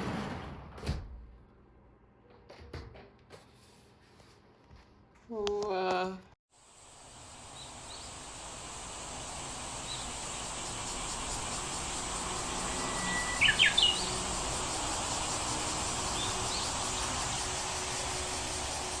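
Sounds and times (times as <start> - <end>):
insects high hiss: 6.5 - 19.0
faint bird chirps: 12.7 - 14.1
bird sharp calls: 12.8 - 14.2.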